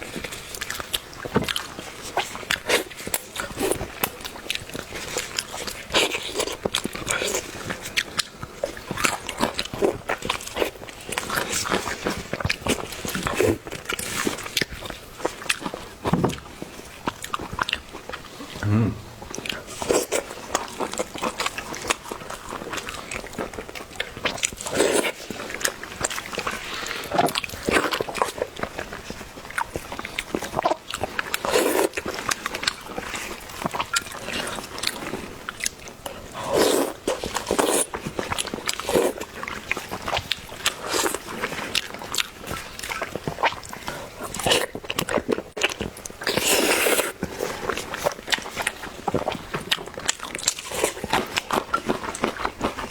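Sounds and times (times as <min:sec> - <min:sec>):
person chewing food: 0:00.1 - 0:52.9
mouth clicks: 0:18.6 - 0:19.6.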